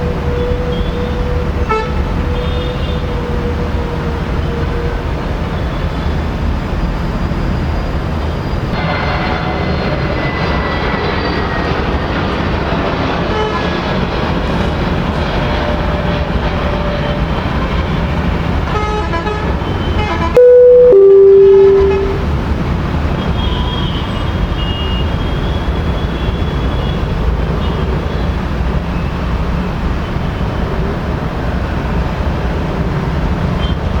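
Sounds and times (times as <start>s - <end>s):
vehicle horn two-note blast: 20.0s - 22.3s.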